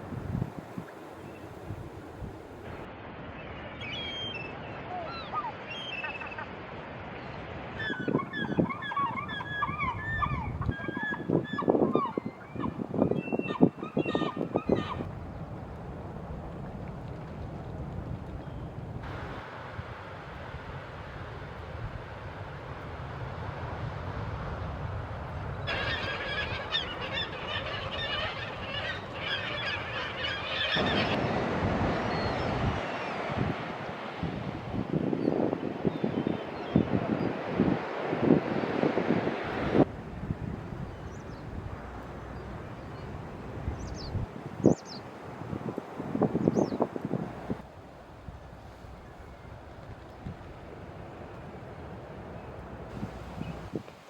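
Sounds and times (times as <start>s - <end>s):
wind rumble on microphone: 0.0s - 2.9s, 7.8s - 54.0s
whistled bird calls: 3.8s - 6.4s, 7.8s - 15.0s, 25.7s - 31.3s
geese honking: 25.7s - 32.1s
background hiss: 52.9s - 54.0s.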